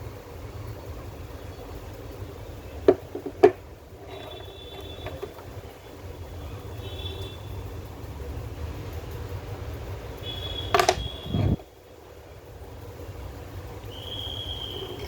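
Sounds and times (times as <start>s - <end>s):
short squeaky scrapes: 4.0s - 5.5s, 10.8s - 11.6s
sharp clicks of hard parts: 10.6s - 11.6s.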